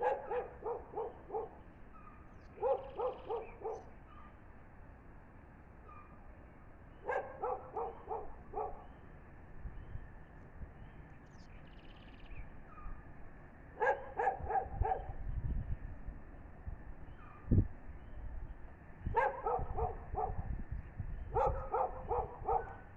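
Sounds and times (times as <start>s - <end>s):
dog barking: 0.0s - 1.6s, 2.6s - 3.9s, 7.0s - 8.9s, 13.8s - 15.2s, 19.1s - 20.5s, 21.3s - 22.9s.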